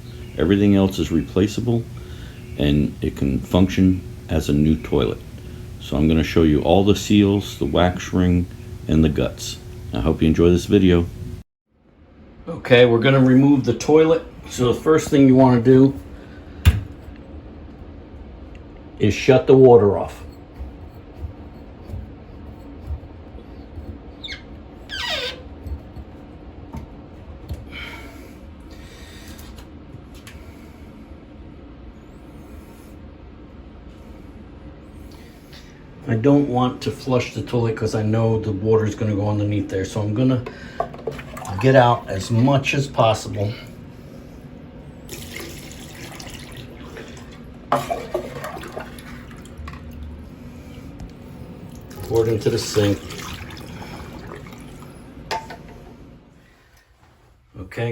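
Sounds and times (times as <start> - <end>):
valve squeaking: 0.0 - 10.6, 20.2 - 25.9
water dripping and splashing: 41.0 - 42.1, 45.1 - 50.2, 51.7 - 54.9
water being poured: 41.0 - 42.3, 45.1 - 50.1, 51.7 - 55.0.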